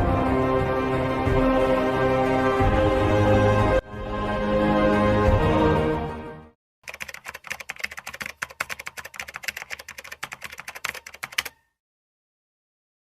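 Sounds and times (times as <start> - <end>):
music: 0.0 - 6.6
rapid irregular clicking: 6.8 - 11.6.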